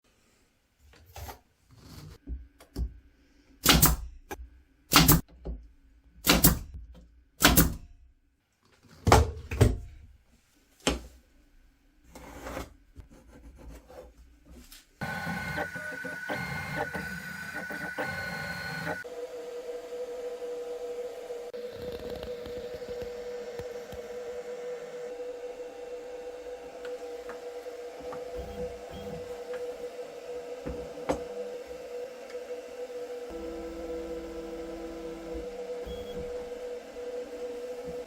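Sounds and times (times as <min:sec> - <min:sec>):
steady machine whine: 0:15.0 - 0:38.0.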